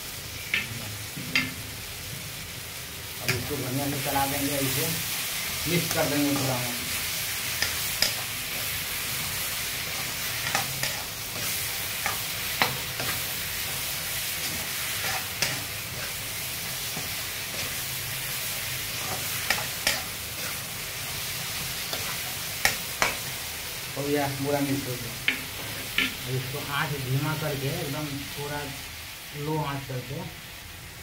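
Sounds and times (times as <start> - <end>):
onions and tomatoes sizzling: 0.0 - 31.0
metal spatula scraping a pan: 7.5 - 18.0, 18.8 - 20.7.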